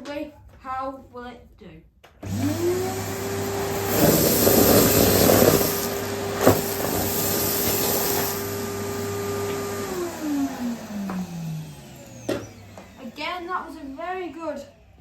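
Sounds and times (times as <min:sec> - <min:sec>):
vacuum cleaner motor whine: 0:02.2 - 0:15.0
debris being sucked up: 0:03.8 - 0:08.6.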